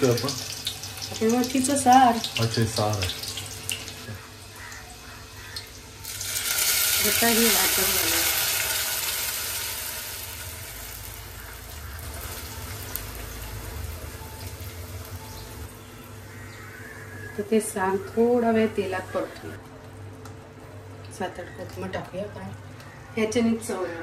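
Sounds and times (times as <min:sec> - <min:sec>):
paste sizzling in hot oil: 0:00.0 - 0:14.9.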